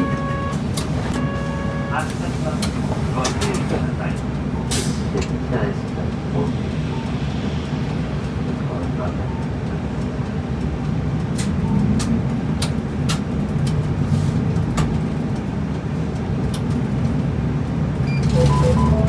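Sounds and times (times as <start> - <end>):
bus engine and road noise: 0.0 - 19.0
sharp clicks and rattles: 8.3 - 17.3.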